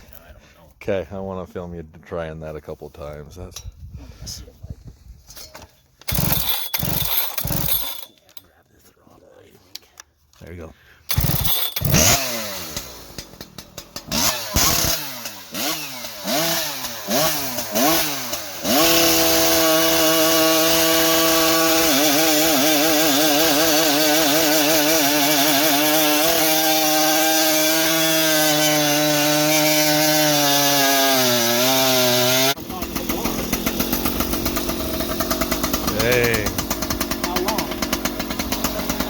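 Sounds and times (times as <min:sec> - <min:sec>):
chainsaw revving: 0:06.0 - 0:08.2, 0:11.0 - 0:39.0.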